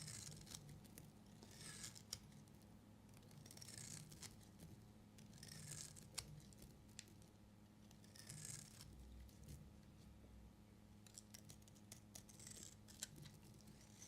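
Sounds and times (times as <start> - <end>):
knife cutting through soap: 0.0 - 2.4, 3.2 - 6.7, 8.0 - 9.6, 11.4 - 14.0.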